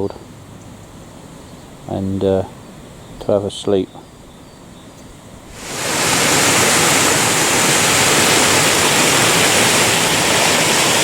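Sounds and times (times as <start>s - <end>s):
water rushing over weir: 5.5s - 11.0s.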